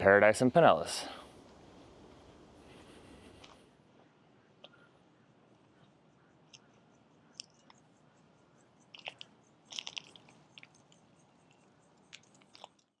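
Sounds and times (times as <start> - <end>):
faint crackles and clicks: 1.4 - 4.9, 5.6 - 7.9, 8.8 - 13.0.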